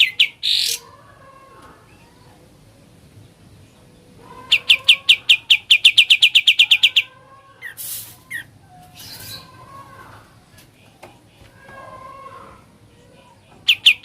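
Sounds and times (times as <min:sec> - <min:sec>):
bird harsh hissing rasps: 0:07.6 - 0:09.5.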